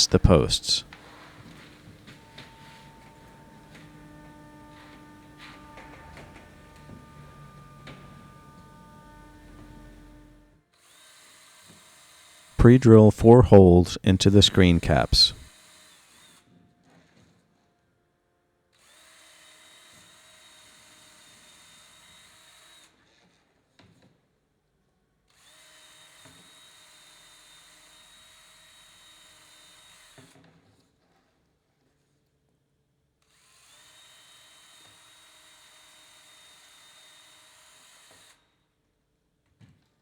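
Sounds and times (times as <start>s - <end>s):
power drill whining: 1.0s - 10.4s.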